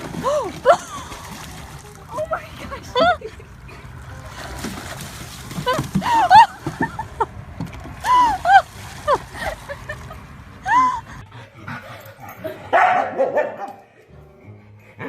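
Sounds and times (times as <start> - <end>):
dog yelping and barking: 12.2 - 13.8.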